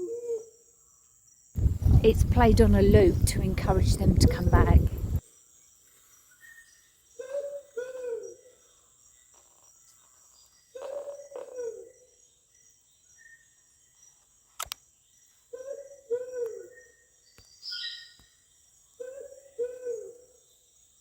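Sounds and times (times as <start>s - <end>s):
high insect hum: 1.6s - 5.2s.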